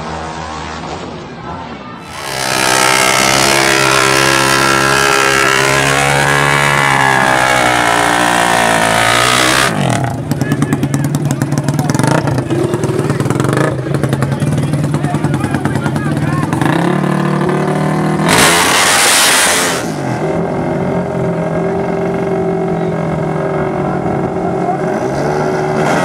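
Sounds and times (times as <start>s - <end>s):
race engine revving and idling: 0.0s - 26.0s.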